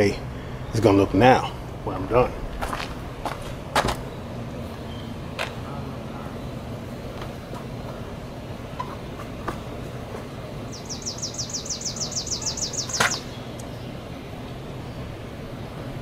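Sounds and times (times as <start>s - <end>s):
low background rumble: 0.0s - 16.0s
bird trill: 10.6s - 14.0s.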